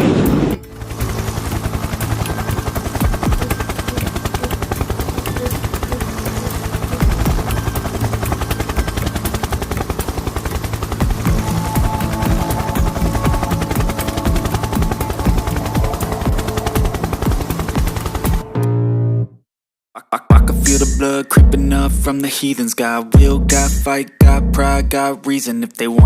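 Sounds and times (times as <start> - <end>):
spinning rotor chopping flutter: 0.3 - 18.6.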